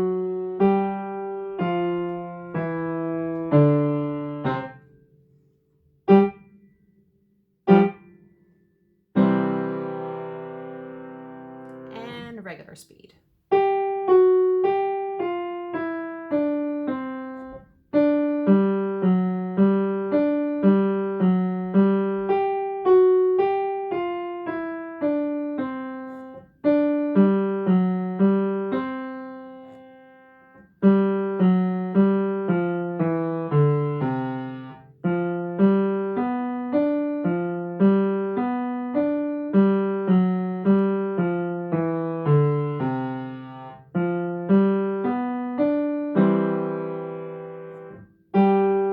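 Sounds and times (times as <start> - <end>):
ragtime piano playing: 13.6 - 48.9.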